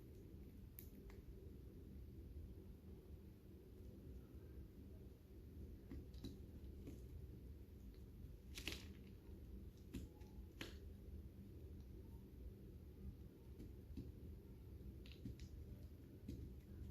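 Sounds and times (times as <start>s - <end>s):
low steady hum: 0.0s - 16.9s.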